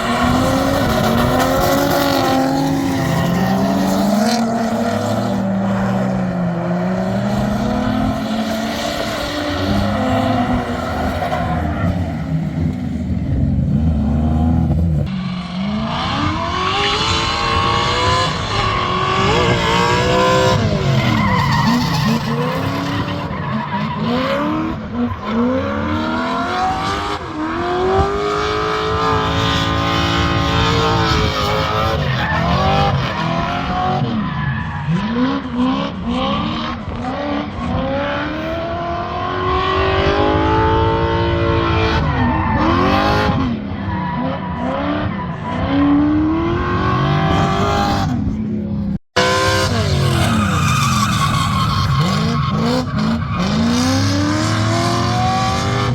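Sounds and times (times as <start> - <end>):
car engine revving hard: 49.1 - 55.9
tyre squeal: 49.6 - 54.4.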